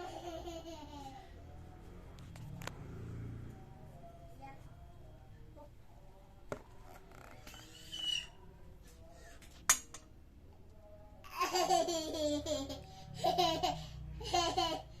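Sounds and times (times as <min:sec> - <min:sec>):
small child laughing and babbling: 0:00.0 - 0:01.4, 0:11.2 - 0:15.0.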